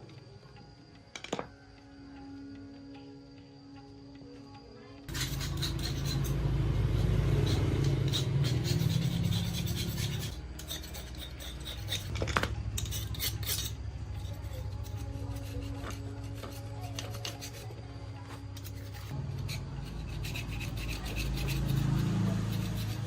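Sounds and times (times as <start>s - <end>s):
low machine hum: 4.6s - 23.0s
metal parts clinking and scraping: 9.7s - 17.5s.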